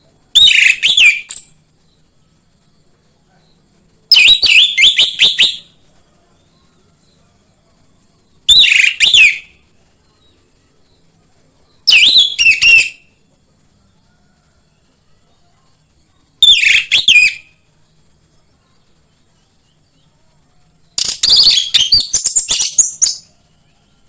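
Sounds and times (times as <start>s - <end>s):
faint high hiss: 0.0s - 24.0s
thrush whistling song: 0.3s - 2.1s, 4.1s - 7.2s, 8.5s - 9.6s, 11.8s - 13.2s, 16.4s - 17.7s, 21.0s - 24.0s.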